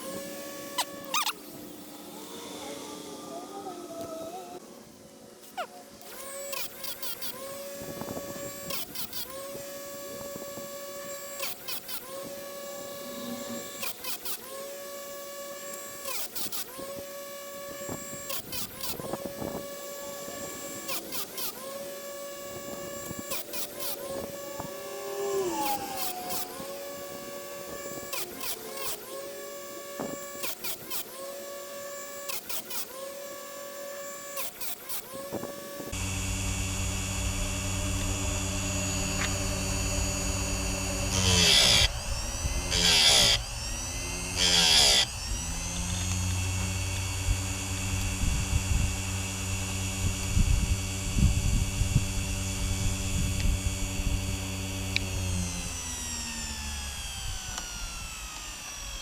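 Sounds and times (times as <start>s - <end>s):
grinder motor bursts: 0.0s - 59.0s
steady low hum: 35.3s - 56.1s.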